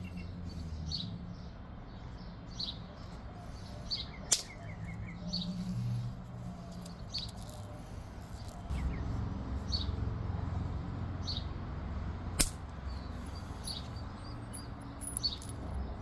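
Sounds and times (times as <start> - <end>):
sharp click of flake snapping: 4.3 - 4.6, 12.4 - 12.8
birds chirping faintly: 12.6 - 16.0.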